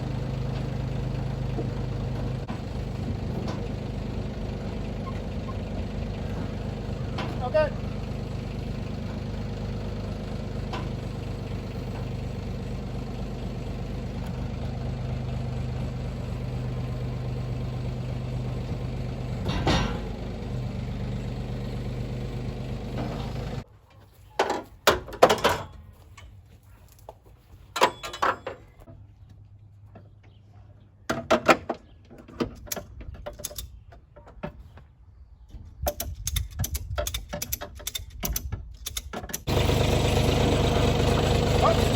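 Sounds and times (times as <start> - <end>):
motor humming: 0.0 - 23.6, 39.5 - 41.9
metal clanks and rattles: 0.4 - 12.4, 18.5 - 20.6, 24.4 - 26.4, 27.7 - 29.0, 31.1 - 34.8, 35.8 - 39.8.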